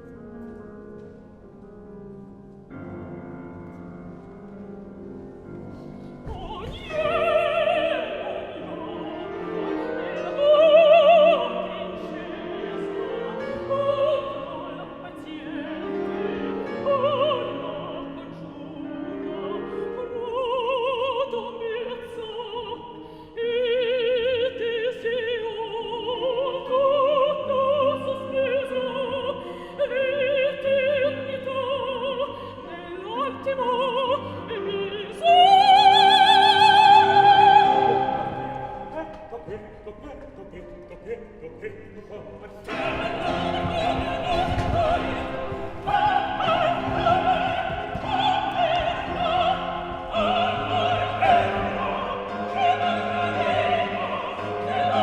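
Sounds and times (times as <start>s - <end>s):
operatic singing in high voice: 6.3s - 55.0s.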